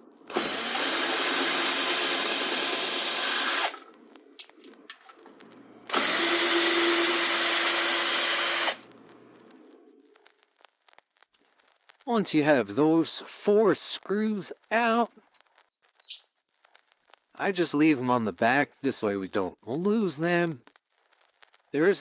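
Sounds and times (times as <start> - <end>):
electric drill running: 0.3 - 3.7, 5.9 - 8.8
small clicks: 1.4 - 6.2, 7.2 - 12.1, 15.2 - 17.4, 20.6 - 21.8.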